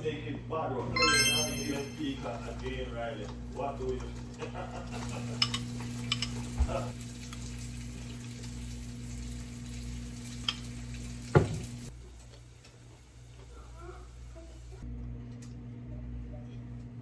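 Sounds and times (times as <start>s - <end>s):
food sizzling in a pan: 4.9s - 14.8s.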